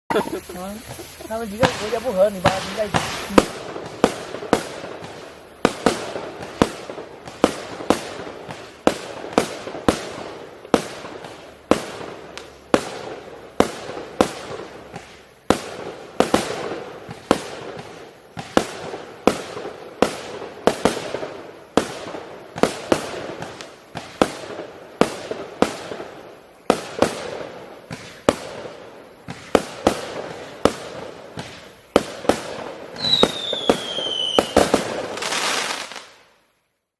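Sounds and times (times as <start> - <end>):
fireworks bangs with crackling: 0.1 - 36.4
falling firework whistle: 31.4 - 36.2.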